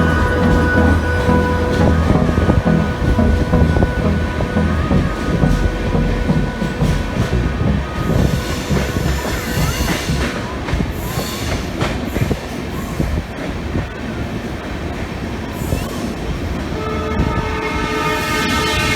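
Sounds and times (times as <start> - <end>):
wheel squeals: 0.0 - 12.9
train wheels rumbling on rails: 0.0 - 18.9
train horn: 16.8 - 18.9.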